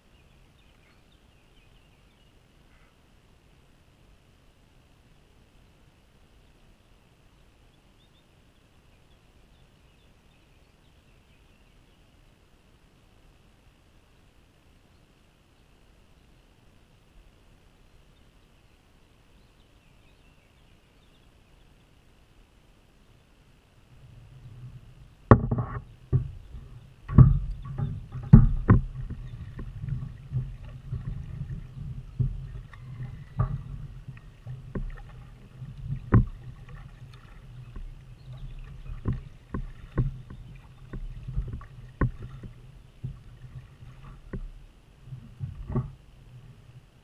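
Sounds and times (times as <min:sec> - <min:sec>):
low steady rumble: 0:00.0 - 0:47.0
knocks on plastic hull: 0:25.3 - 0:44.5.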